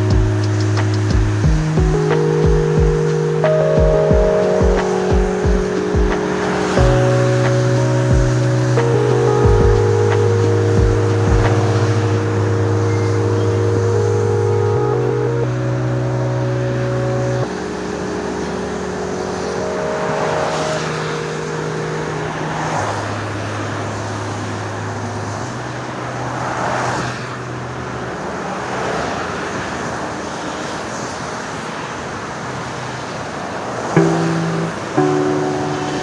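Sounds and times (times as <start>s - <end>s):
held music chords: 0.0s - 26.4s, 33.9s - 36.0s
tyres hissing on wet road: 10.1s - 14.4s, 17.2s - 36.0s
plucked guitar: 34.0s - 36.0s.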